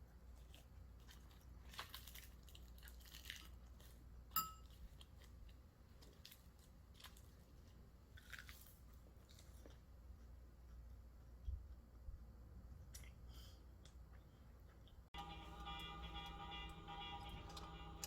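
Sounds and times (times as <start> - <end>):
low steady hum: 0.0 - 18.0
faint clicks and crunches: 0.4 - 4.0, 4.6 - 9.9
ringing clink: 4.4 - 4.6.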